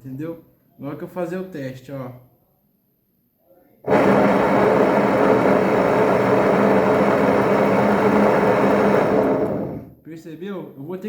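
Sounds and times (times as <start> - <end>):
washing machine spin racket: 3.9 - 9.9.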